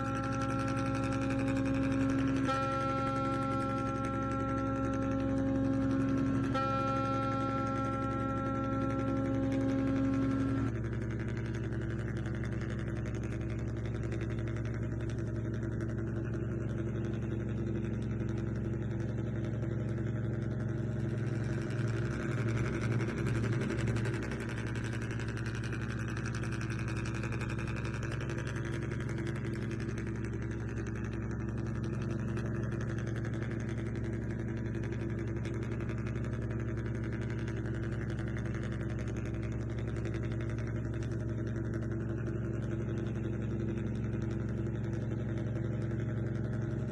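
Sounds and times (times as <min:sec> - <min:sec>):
vehicle engine idling: 0:00.0 - 0:46.9.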